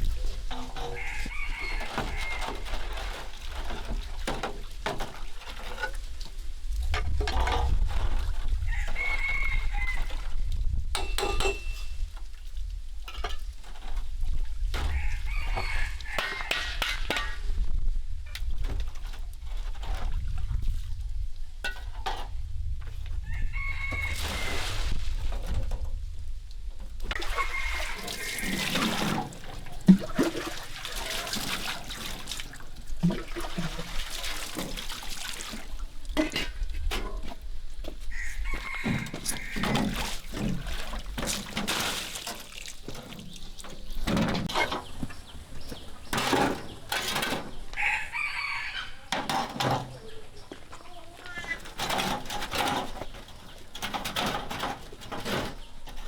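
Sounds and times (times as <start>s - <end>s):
chickens clucking: 0.0s - 3.6s, 14.8s - 17.4s, 27.1s - 34.7s, 36.2s - 56.0s
scraping and knocking: 0.0s - 12.1s, 13.1s - 17.7s, 18.4s - 26.2s, 26.8s - 56.0s
rooster crowing: 0.8s - 2.8s, 8.7s - 10.2s, 14.9s - 16.8s, 23.2s - 24.7s, 27.2s - 29.0s, 38.1s - 40.0s, 47.7s - 49.2s.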